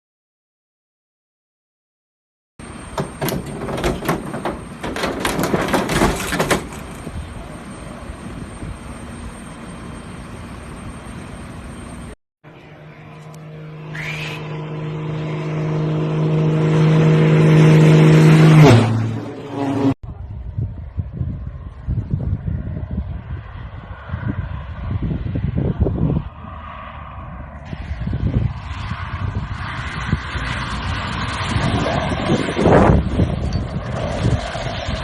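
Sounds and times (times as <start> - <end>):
aircraft passing overhead: 2.6 - 35.0
sharp knocks: 2.9 - 6.9.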